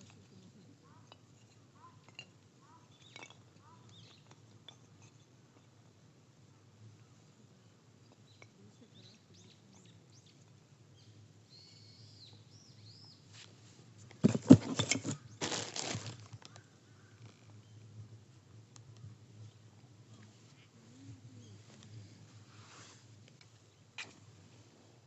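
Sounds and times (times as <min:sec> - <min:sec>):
small birds chirping: 0:02.6 - 0:04.4, 0:08.0 - 0:13.3
handling noise with clicks: 0:16.0 - 0:17.6.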